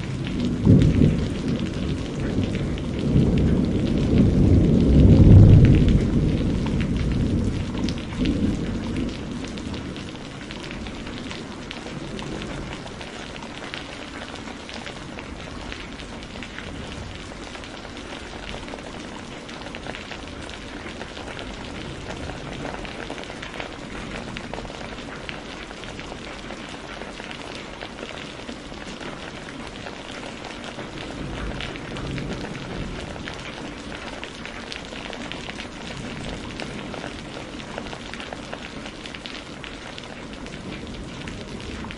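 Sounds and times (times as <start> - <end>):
low thunder rumble: 0.0 - 14.2, 30.8 - 37.4
rain falling: 0.0 - 41.9.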